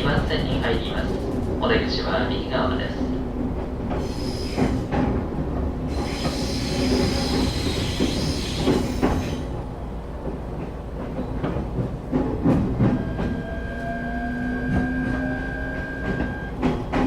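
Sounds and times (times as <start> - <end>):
train wheels rumbling on rail: 0.0 - 17.0
wheels and brakes squealing: 5.9 - 9.5, 12.8 - 17.0.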